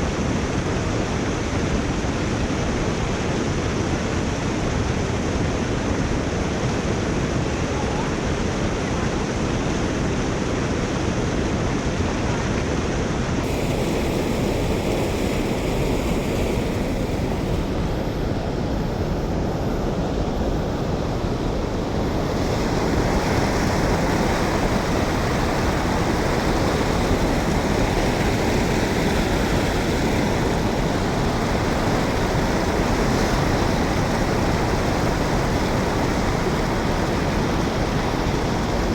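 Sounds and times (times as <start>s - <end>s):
water rushing through culvert: 13.4s - 38.9s.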